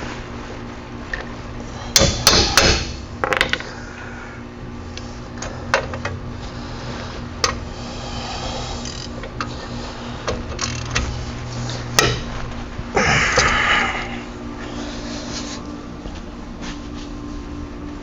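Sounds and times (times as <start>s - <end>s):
hammer striking metal: 2.0s - 3.0s.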